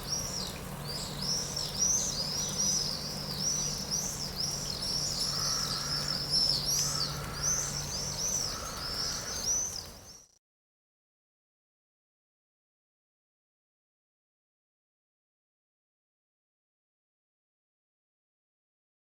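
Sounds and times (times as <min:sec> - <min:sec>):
bird warbling calls: 0:00.0 - 0:10.3
small birds chirping: 0:00.0 - 0:10.4.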